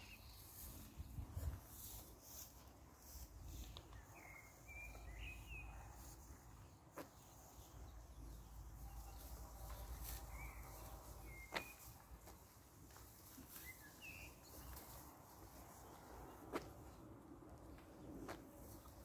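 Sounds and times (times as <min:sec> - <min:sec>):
bird chirps: 0:03.9 - 0:05.8, 0:13.5 - 0:14.9.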